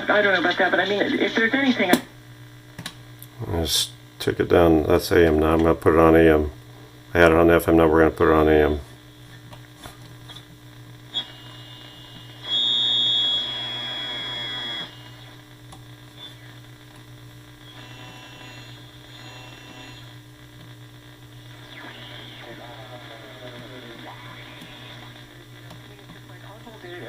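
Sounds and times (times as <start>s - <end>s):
radio hum with static: 0.0s - 27.0s
radio whistles gliding in pitch: 11.1s - 15.4s, 16.1s - 16.6s, 17.6s - 20.2s, 21.4s - 25.2s.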